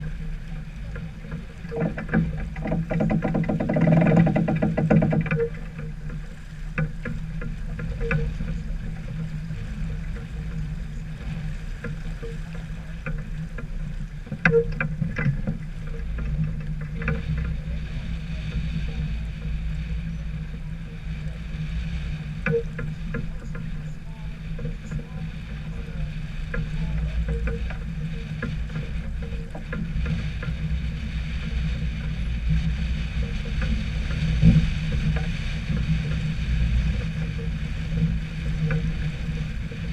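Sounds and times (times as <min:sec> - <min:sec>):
low hum: 0:00.0 - 0:39.9
wind and water rumble: 0:00.0 - 0:39.9
light clicks and knocks: 0:00.1 - 0:20.8.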